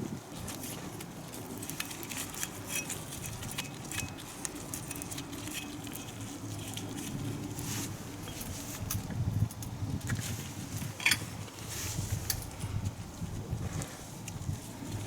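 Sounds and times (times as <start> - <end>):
steady low hum: 0.0 - 15.0
clicks and clinks of metal tools: 11.0 - 11.2.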